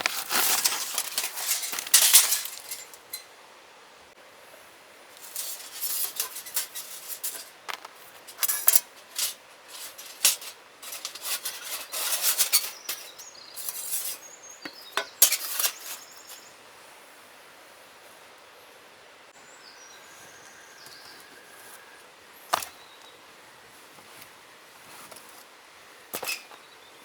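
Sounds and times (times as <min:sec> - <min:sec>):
faint outdoor background: 0:00.0 - 0:27.0
metal cookware clinking and scraping: 0:00.2 - 0:03.3, 0:05.2 - 0:07.6, 0:08.3 - 0:16.4.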